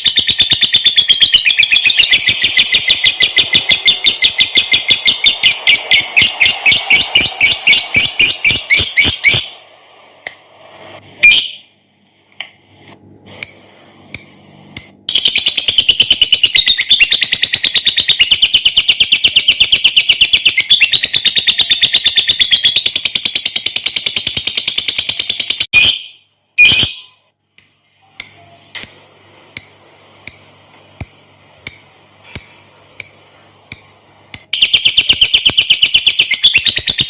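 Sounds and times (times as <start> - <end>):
bird chirps: 0.0 - 9.6, 13.4 - 37.0
lovebird chattering: 0.0 - 9.6, 29.6 - 37.0.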